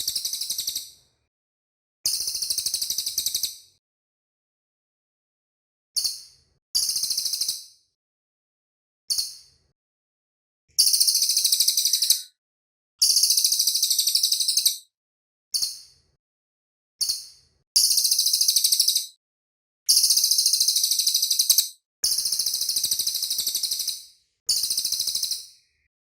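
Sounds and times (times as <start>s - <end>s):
bird singing high trills: 10.8s - 12.4s, 13.1s - 14.8s, 17.9s - 19.1s.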